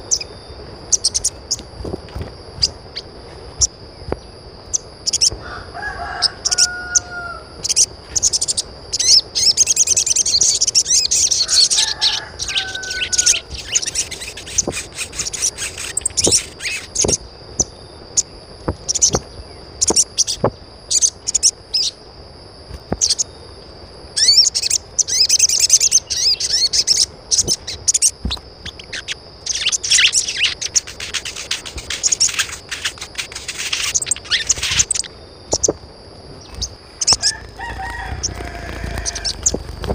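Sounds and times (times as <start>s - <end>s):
birds chirping: 0.0s - 22.0s, 22.9s - 23.5s, 24.2s - 39.9s
short lower bird calls: 24.2s - 35.7s.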